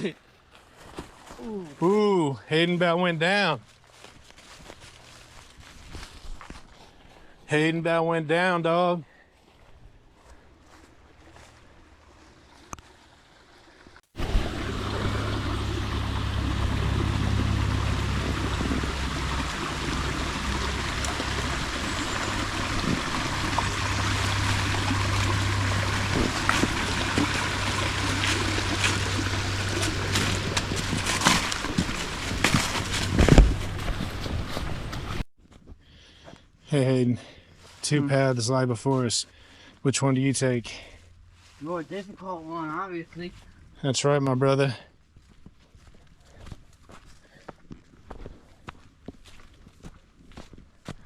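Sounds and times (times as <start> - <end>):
stream water rushing and splashing: 11.2 - 35.2.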